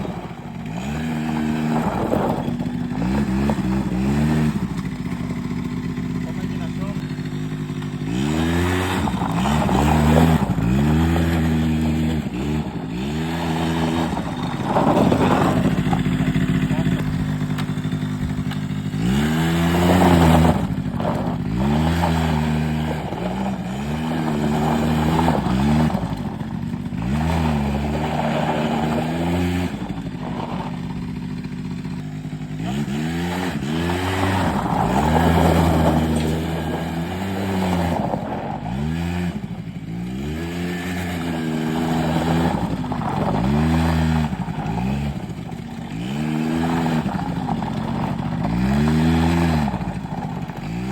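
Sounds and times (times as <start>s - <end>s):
quad engine revving: 0.0s - 50.9s.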